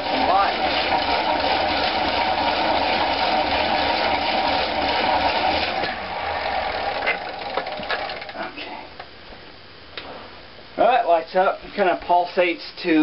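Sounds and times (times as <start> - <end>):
exercise bike alternator whirring: 0.0 - 8.9.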